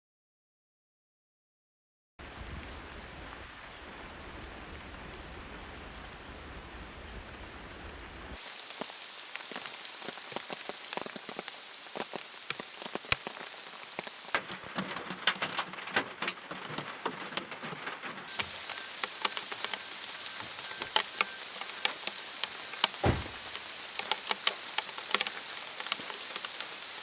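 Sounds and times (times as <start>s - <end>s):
rain hissing in forest: 2.2s - 27.0s
raindrops pattering on surfaces: 2.2s - 27.0s.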